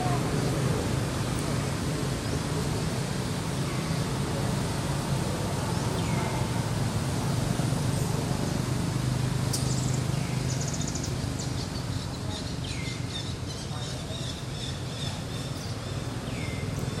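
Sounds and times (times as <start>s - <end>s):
birds chirping: 9.5s - 17.0s.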